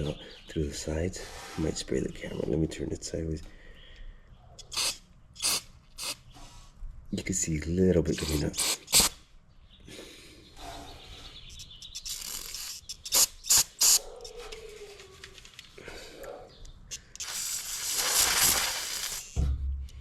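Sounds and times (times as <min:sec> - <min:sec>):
aerosol can spraying: 0:04.7 - 0:06.2, 0:08.2 - 0:09.2, 0:12.0 - 0:14.0, 0:17.2 - 0:19.4.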